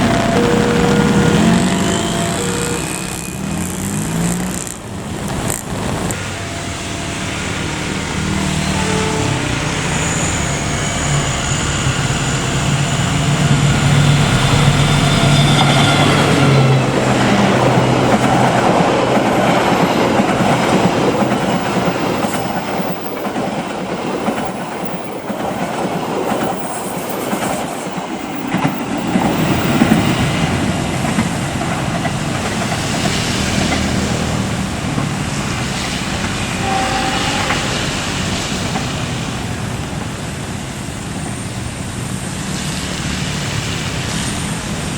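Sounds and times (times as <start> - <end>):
locomotive humming: 0.0 - 42.4
train carriages clattering on rails: 12.6 - 41.7.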